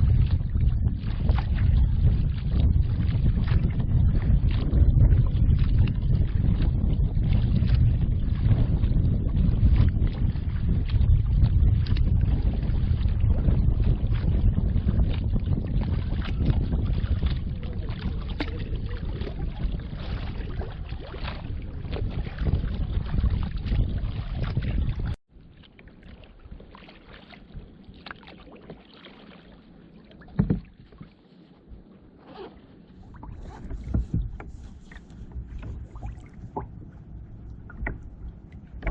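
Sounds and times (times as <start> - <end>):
paddle splashing water: 0.0 - 38.9
wind rumble on microphone: 0.0 - 38.9
paddle knocking on hull: 30.2 - 31.2, 33.1 - 38.9.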